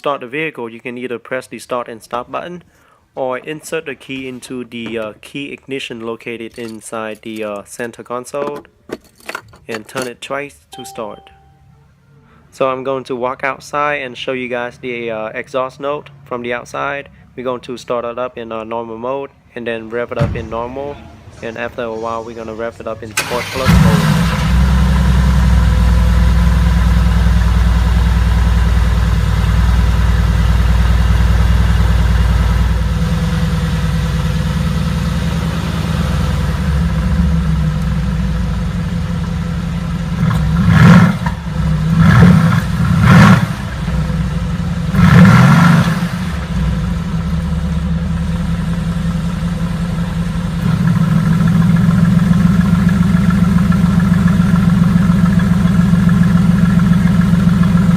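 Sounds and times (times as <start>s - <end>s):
engine rev bursts: 23.2s - 26.3s, 40.1s - 47.4s
car exhaust idling: 23.9s - 57.9s.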